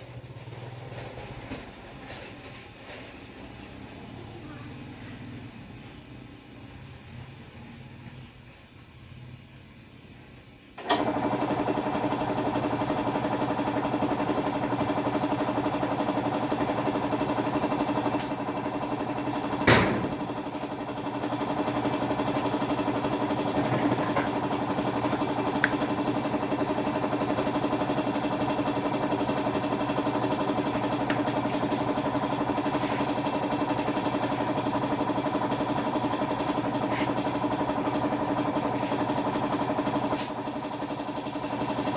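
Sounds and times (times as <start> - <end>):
motor humming: 10.8 - 41.9.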